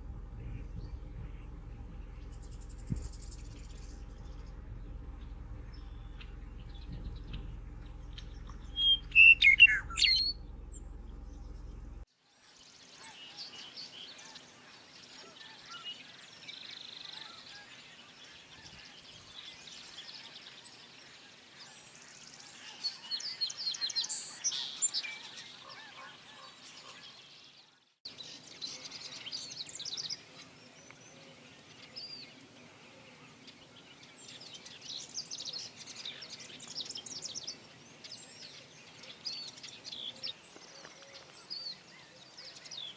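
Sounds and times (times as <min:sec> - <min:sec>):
low rumble: 0:00.0 - 0:12.1
birds chirping and trilling: 0:00.0 - 0:42.9.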